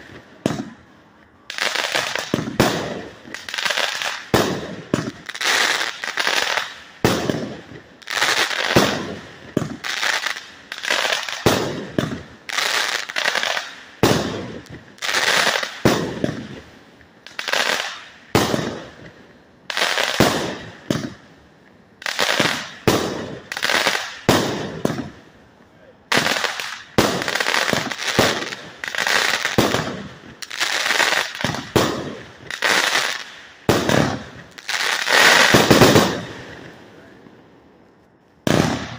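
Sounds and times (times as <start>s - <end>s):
fireworks bangs: 0.0s - 21.3s, 22.0s - 25.3s, 26.0s - 37.3s, 38.1s - 38.9s.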